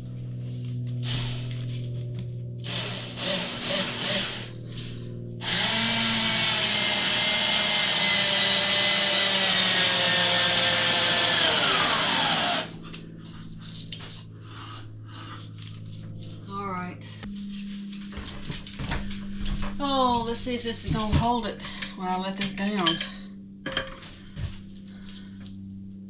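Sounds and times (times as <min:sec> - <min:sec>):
power drill driving screw into wood: 0:02.7 - 0:04.5, 0:05.4 - 0:12.7.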